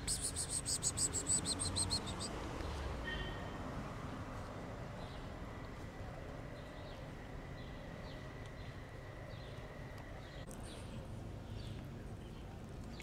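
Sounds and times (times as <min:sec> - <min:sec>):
bird chirping: 0:00.0 - 0:02.4.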